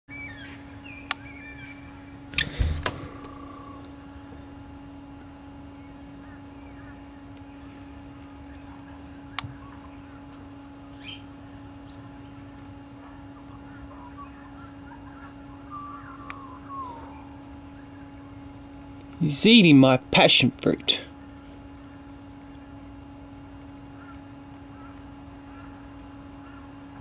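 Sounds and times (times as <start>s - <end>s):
small birds chirping: 0.1s - 4.8s, 5.6s - 19.6s
low hum: 0.5s - 27.0s.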